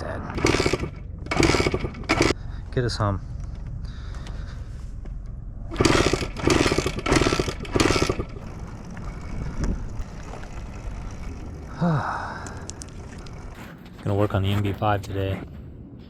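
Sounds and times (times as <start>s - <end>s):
small engine turning over: 0.4s - 2.4s, 5.7s - 13.6s.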